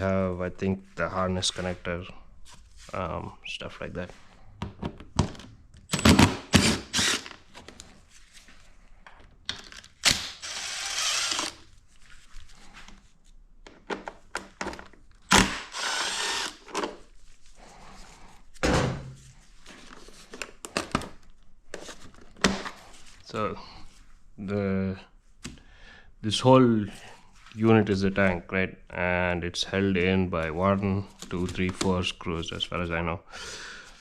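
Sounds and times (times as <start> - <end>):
handheld power tool running: 6.0 - 7.4, 10.0 - 11.6, 15.3 - 16.7.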